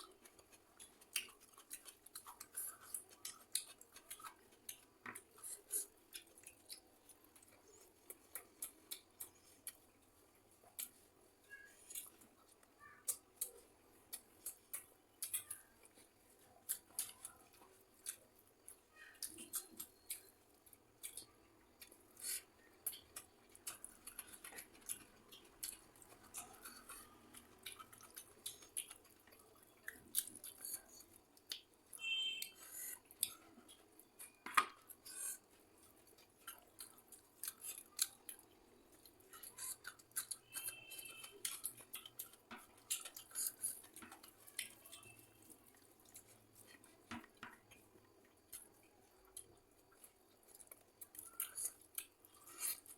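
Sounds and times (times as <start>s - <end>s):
eating clicks and crunches: 0.0s - 52.9s.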